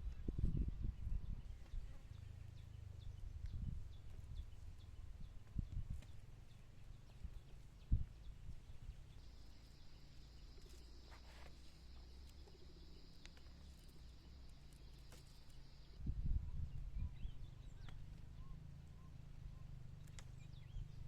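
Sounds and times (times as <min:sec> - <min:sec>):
low outdoor rumble: 0:00.0 - 0:21.0
high-pitched insect buzz: 0:09.2 - 0:16.0.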